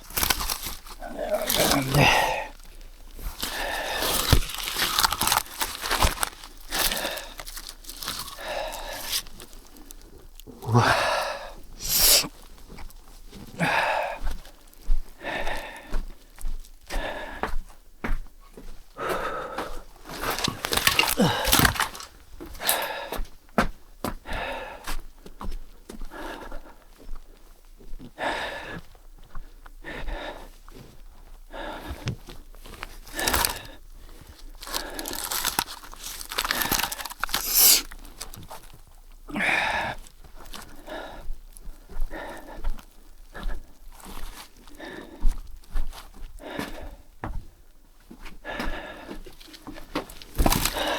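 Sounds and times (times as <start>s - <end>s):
footsteps crunching in snow: 0.0s - 9.8s
man breathing hard: 0.0s - 12.4s, 13.3s - 27.5s, 28.1s - 38.4s, 39.3s - 50.9s.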